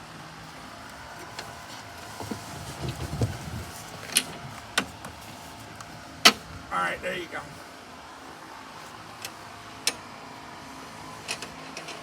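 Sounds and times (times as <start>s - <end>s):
rumbling scraping of handle parts: 1.1s - 5.6s.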